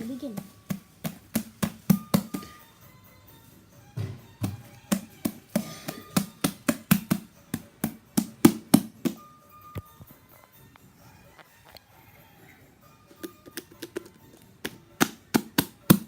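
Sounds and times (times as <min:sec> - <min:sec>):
slime clicking and popping: 0:13.2 - 0:16.0.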